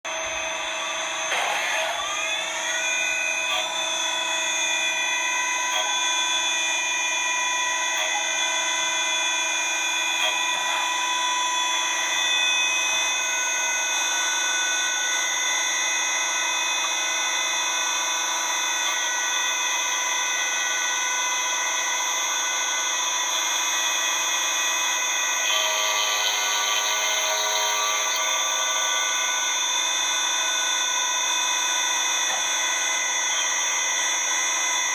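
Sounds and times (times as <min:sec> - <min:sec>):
rougher higher machine layer: 0:00.1 - 0:15.1
lathe machine whine: 0:00.1 - 0:34.9.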